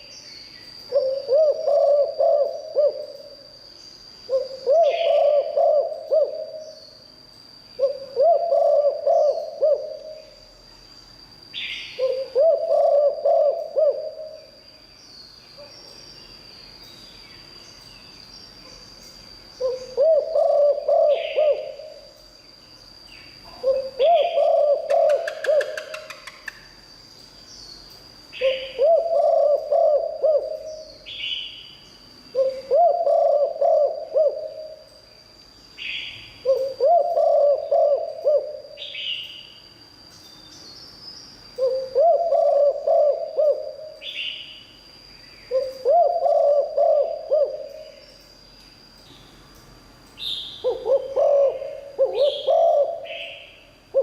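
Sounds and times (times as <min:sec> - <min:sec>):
dove cooing: 0:00.9 - 0:03.4, 0:04.3 - 0:06.8, 0:07.8 - 0:10.4, 0:12.0 - 0:14.6, 0:19.6 - 0:22.1, 0:23.5 - 0:26.4, 0:28.4 - 0:30.9, 0:32.3 - 0:34.8, 0:36.4 - 0:38.9, 0:41.6 - 0:44.2, 0:45.5 - 0:48.0, 0:50.6 - 0:54.0.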